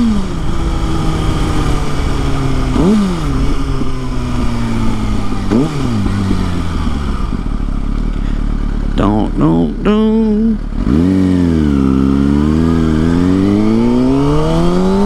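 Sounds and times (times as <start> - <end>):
motorcycle engine while riding: 0.0 - 15.0.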